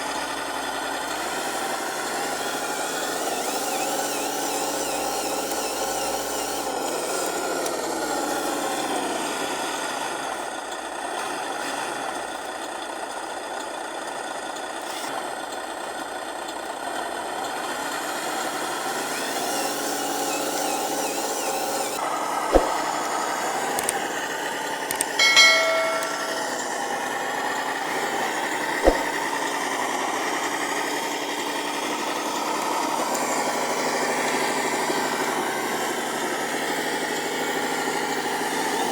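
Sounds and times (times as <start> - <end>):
model truck motor whining: 0.0 - 22.0
sharp knocks: 22.5 - 22.9, 24.9 - 26.6, 28.8 - 29.2
short clatter: 24.9 - 26.6.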